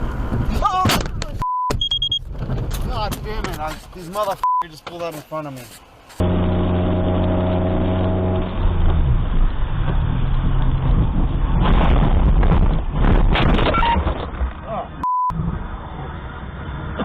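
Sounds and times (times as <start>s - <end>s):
rumbling road noise: 0.0s - 17.0s
sharp knocks and rattles: 1.8s - 3.7s
vehicle engine humming: 2.1s - 13.0s.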